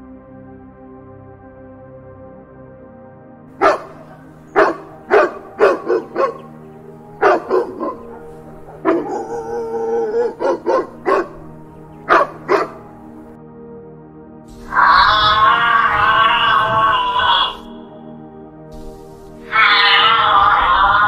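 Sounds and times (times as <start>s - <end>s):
soft background music: 0.0s - 21.0s
dog barking: 3.6s - 13.3s
dog drawn-out wavering call: 3.6s - 13.3s, 14.6s - 17.9s, 19.3s - 21.0s.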